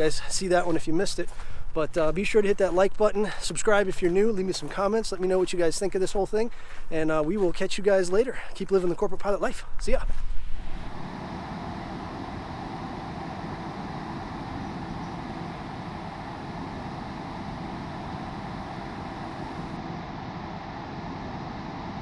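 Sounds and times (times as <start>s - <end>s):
jet cockpit airflow and engine noise: 10.1s - 22.0s.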